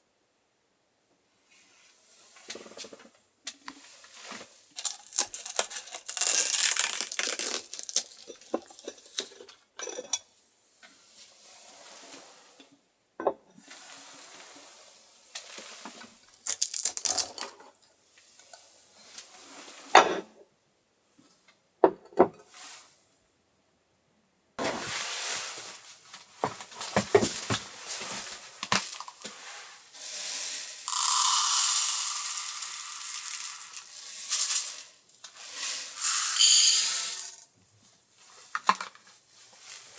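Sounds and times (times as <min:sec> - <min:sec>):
dishes and utensils clinking: 0:08.1 - 0:10.3, 0:30.9 - 0:33.9
hiss: 0:30.0 - 0:34.9, 0:35.5 - 0:37.4.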